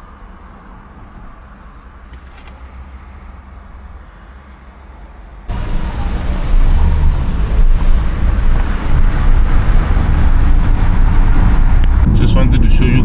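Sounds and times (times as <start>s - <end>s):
road rumble: 0.0s - 13.0s
wind noise: 5.5s - 13.0s.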